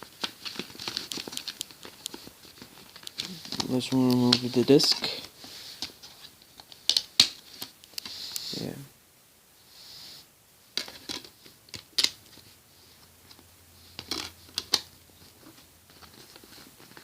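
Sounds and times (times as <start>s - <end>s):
soft rustle: 0.0s - 8.9s, 9.6s - 10.3s, 12.2s - 17.0s
plastic disc case clicks and snaps: 5.8s - 8.1s, 10.8s - 12.2s, 14.0s - 14.9s.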